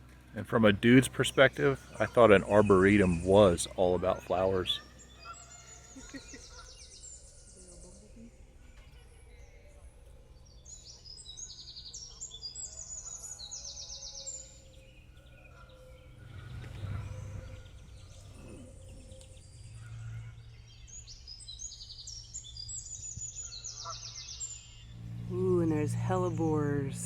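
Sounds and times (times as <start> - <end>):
songbird trilling: 0.7 - 7.6, 10.7 - 27.0
steady low rumble: 24.8 - 27.0.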